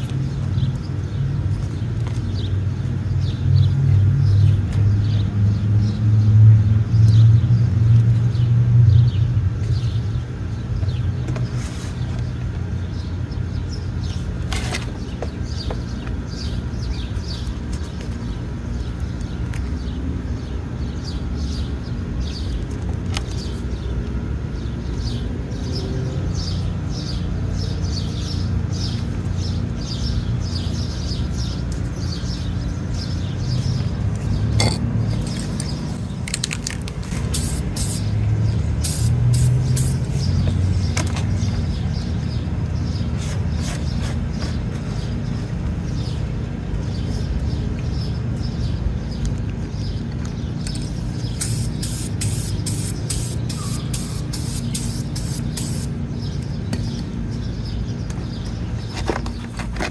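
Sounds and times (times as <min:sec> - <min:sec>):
spray can rattling: 0:35.2 - 0:38.2, 0:38.8 - 0:40.1, 0:50.7 - 0:55.9
spray can hissing: 0:37.1 - 0:38.2, 0:38.8 - 0:40.2, 0:51.3 - 0:55.9.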